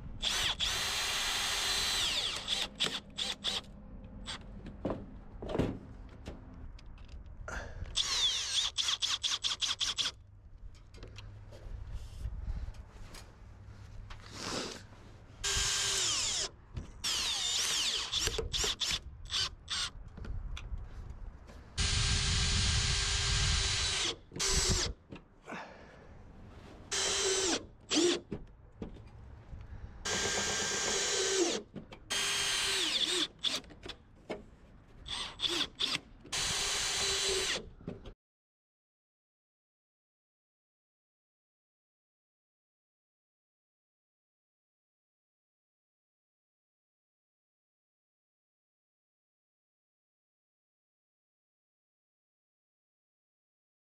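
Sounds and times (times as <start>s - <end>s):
cordless drill driving screws: 0.2s - 3.7s, 8.0s - 10.2s, 15.4s - 20.0s, 21.8s - 25.0s, 26.9s - 28.3s, 30.0s - 34.0s, 35.0s - 37.7s
handling and scraping: 26.3s - 26.9s.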